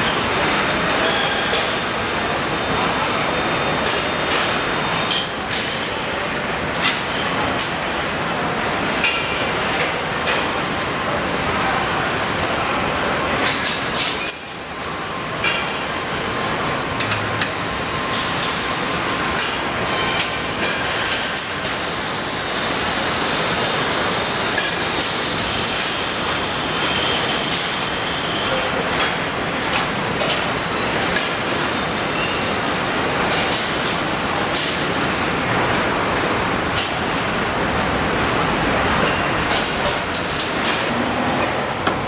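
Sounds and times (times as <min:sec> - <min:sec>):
high machine whine: 0:00.0 - 0:42.0
machinery din: 0:15.3 - 0:20.0.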